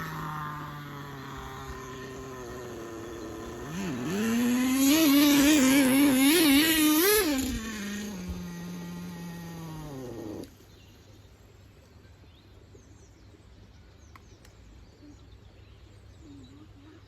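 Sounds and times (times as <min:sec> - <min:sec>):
small nitro engine idling and revving: 0:00.0 - 0:10.7.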